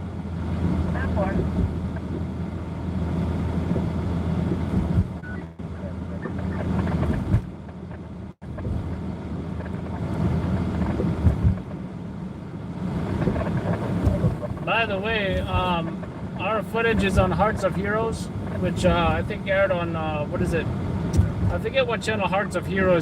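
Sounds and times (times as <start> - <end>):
car engine and road rumble: 0.0 - 23.0
low thumps: 3.7 - 5.6, 6.2 - 9.1, 10.6 - 11.7, 13.0 - 19.4.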